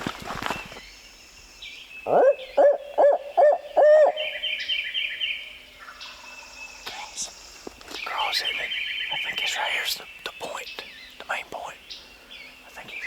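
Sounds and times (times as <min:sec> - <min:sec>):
owl hooting: 0:02.0 - 0:07.4.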